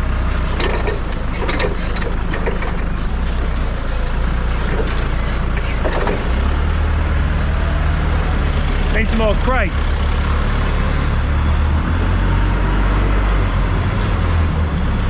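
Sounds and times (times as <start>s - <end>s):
farm machine engine running: 0.0s - 15.0s
knocks and clatter: 0.3s - 6.7s.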